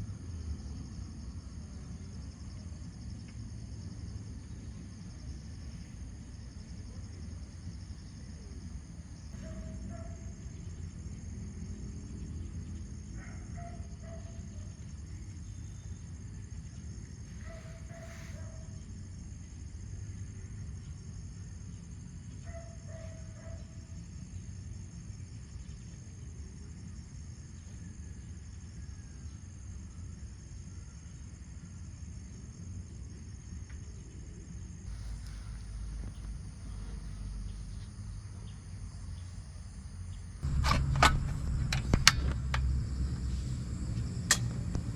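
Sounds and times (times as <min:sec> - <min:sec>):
high insect drone: 0:00.0 - 0:44.9
low outdoor rumble: 0:34.9 - 0:44.9.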